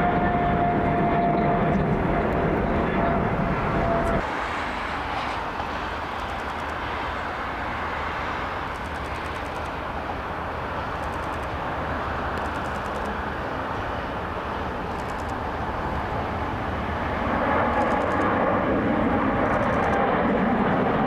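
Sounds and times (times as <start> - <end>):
high steady engine whine: 0.0 - 21.0
jet airliner engines roaring: 0.0 - 21.0.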